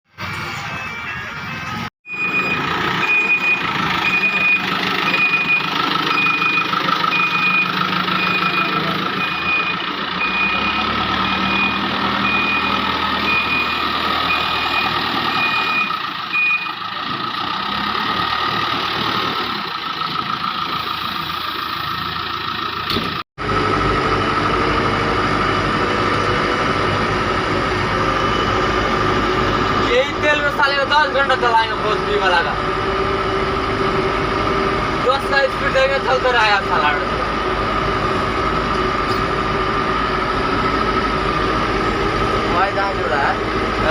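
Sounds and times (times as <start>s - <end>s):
diesel machinery running: 0.1s - 43.9s
reversing alarm beeping: 0.3s - 16.9s.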